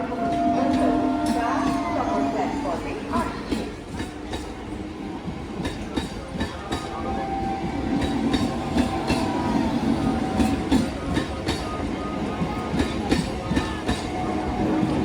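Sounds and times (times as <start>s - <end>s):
train low rumble: 0.0s - 15.0s
train wheels clacking: 0.0s - 15.0s.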